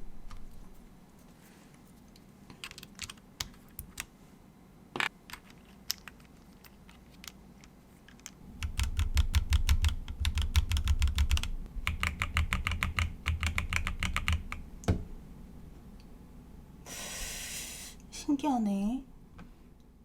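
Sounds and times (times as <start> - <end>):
mechanical keyboard typing: 8.6 - 14.6.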